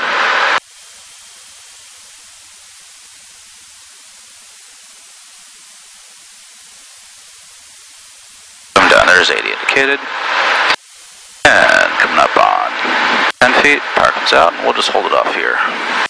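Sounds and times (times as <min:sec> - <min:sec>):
electronic hiss: 0:00.0 - 0:16.0
person speaking: 0:08.8 - 0:10.1, 0:11.4 - 0:12.8, 0:13.4 - 0:15.6.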